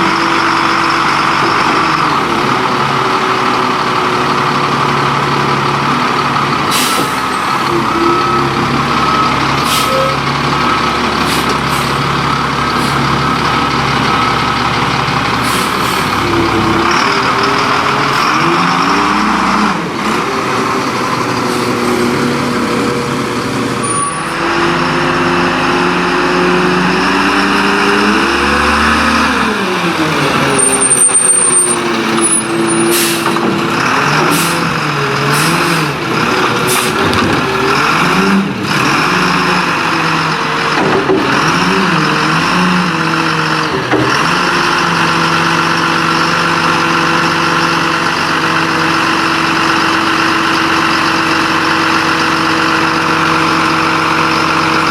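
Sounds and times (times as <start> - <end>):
garbage truck diesel engine: 0.0 - 54.9
air brake hisses: 6.7 - 7.2, 9.6 - 10.2, 15.4 - 16.2.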